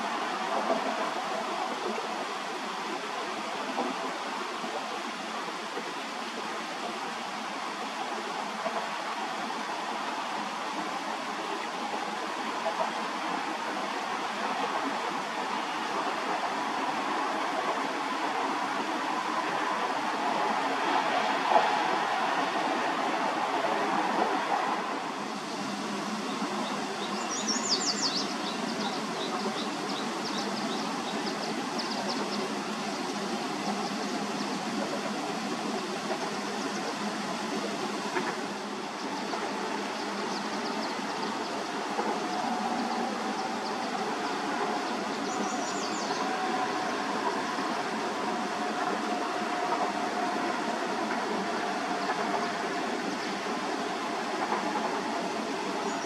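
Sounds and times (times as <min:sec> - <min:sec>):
freight train rolling past: 0:13.3 - 0:56.0.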